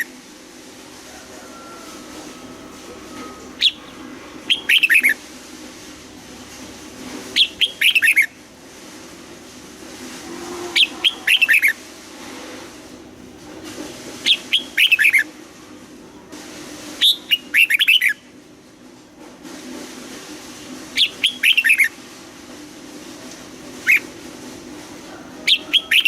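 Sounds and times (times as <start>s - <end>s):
bird singing whistled notes: 3.0s - 5.2s.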